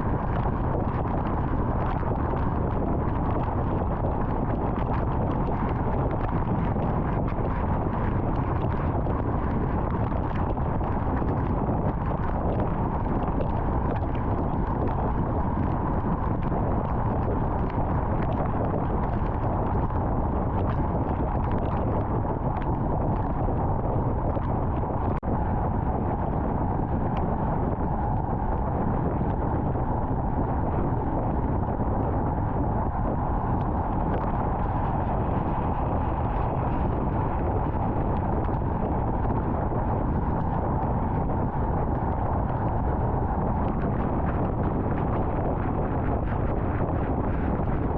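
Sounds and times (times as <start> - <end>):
car driving at highway speed: 8.2 - 47.9.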